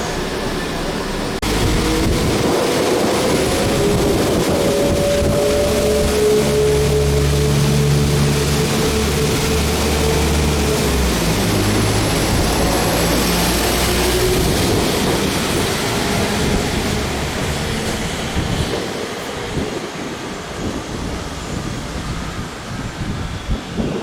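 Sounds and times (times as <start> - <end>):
diesel engine drone: 0.0 - 19.0
train rumbling: 0.0 - 24.0.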